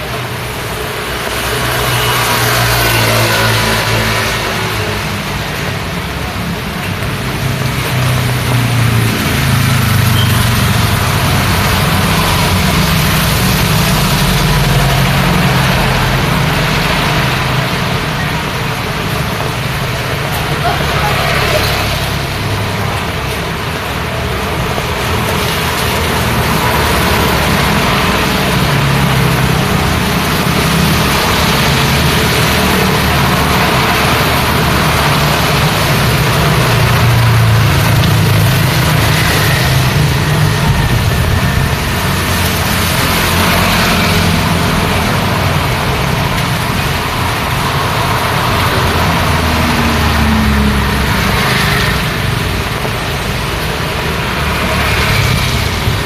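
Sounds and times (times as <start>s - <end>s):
rain and wet tyres hiss: 0.0s - 56.0s
vehicles passing: 0.0s - 56.0s.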